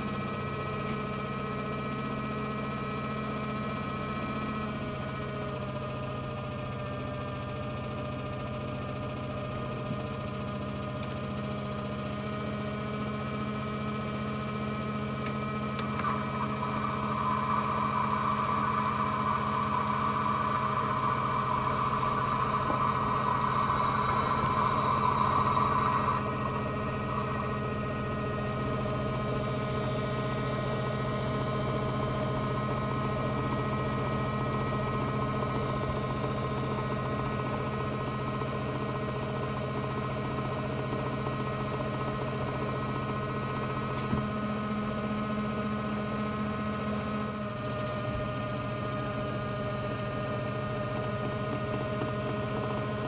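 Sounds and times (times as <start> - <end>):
loud whirring: 0.0 - 53.0
toy motor hum: 15.8 - 29.6.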